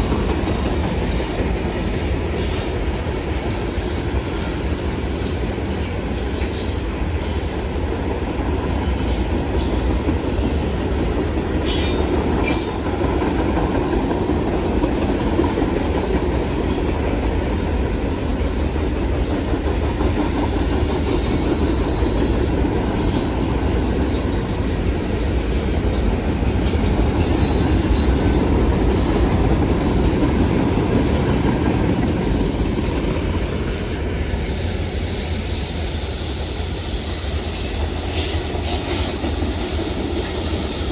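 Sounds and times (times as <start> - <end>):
train wheels rumbling on rail: 0.0 - 40.9
high-pitched wheel squeals: 3.0 - 5.7, 19.4 - 23.6, 26.7 - 30.3.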